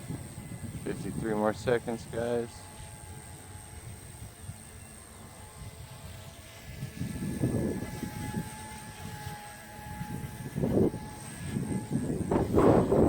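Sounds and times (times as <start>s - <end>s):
rc helicopter motor whine: 0.0s - 13.0s
wind buffeting microphone: 0.0s - 13.0s.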